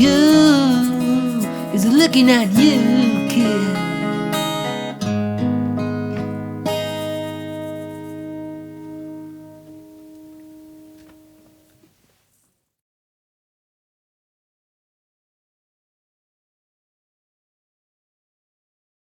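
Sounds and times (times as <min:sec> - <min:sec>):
strummed guitar chords: 0:00.0 - 0:11.6.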